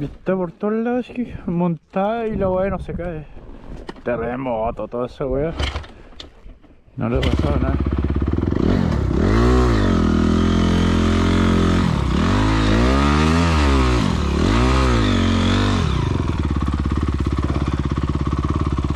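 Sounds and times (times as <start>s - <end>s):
motocross bike engine revving: 7.1s - 18.9s.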